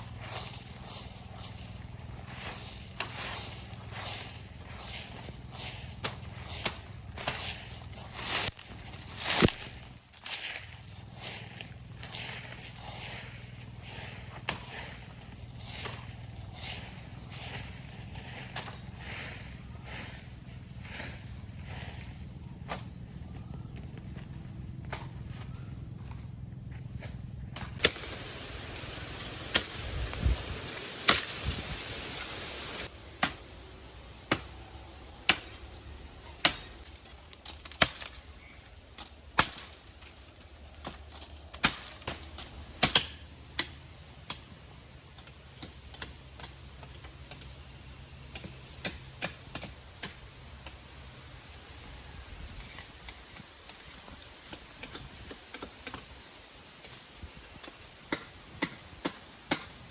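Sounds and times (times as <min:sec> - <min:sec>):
rain hissing: 0:27.8 - 0:36.2.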